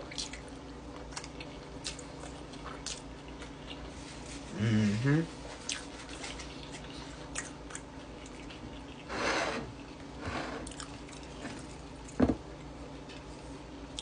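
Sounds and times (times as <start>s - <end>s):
wet chewing: 0.0s - 4.0s, 5.6s - 9.1s.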